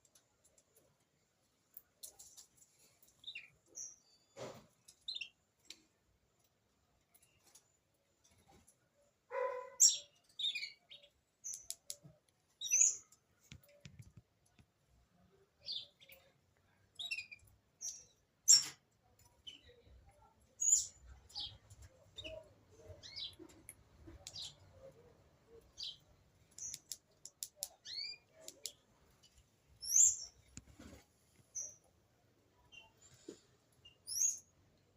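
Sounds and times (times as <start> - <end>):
bird high chirps: 9.3 - 12.0, 12.6 - 13.2, 17.0 - 18.8, 20.6 - 28.8, 29.8 - 30.5, 33.8 - 34.5
sharp clicks: 11.5 - 12.4, 26.5 - 28.8.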